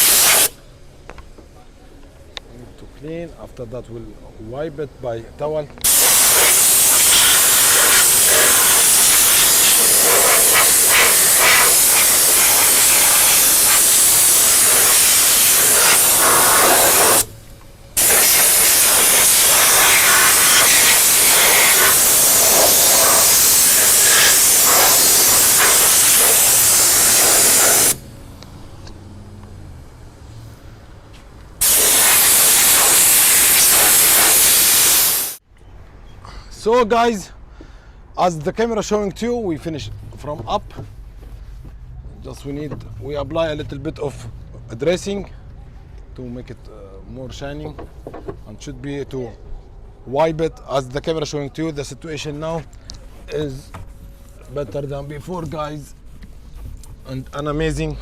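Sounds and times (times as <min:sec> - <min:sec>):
air blow gun hissing: 0:00.0 - 0:00.6, 0:05.8 - 0:17.3, 0:18.0 - 0:28.1, 0:31.6 - 0:35.4.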